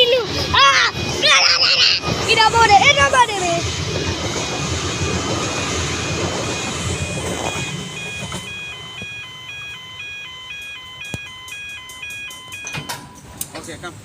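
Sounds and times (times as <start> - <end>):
passing train rumble: 0.0 - 10.6
level crossing warning bells: 0.0 - 13.4
sharp clicks: 10.6 - 13.6.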